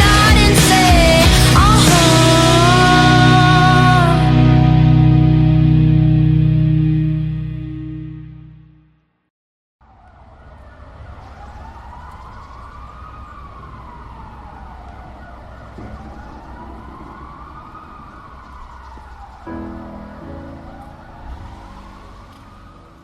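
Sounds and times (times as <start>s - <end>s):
wailing siren: 0.0s - 6.5s, 9.8s - 23.0s
song playing: 0.0s - 8.7s
low street traffic rumble: 9.8s - 23.0s.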